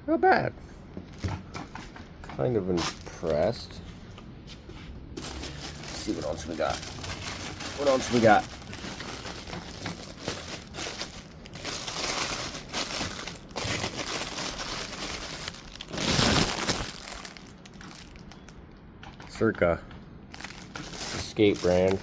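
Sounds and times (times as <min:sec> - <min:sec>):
plastic bag crinkling: 0:05.1 - 0:18.6, 0:20.3 - 0:22.0.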